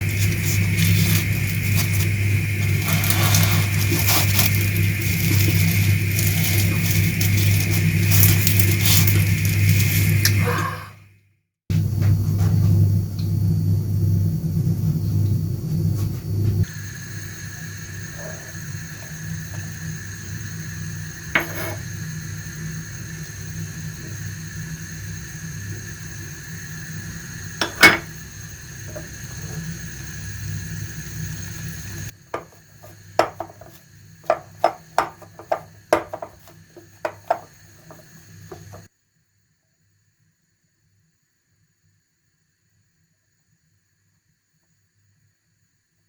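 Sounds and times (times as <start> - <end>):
steady background hum: 0.0 - 10.5, 11.7 - 38.9
utensils clinking against dishes: 27.6 - 28.1.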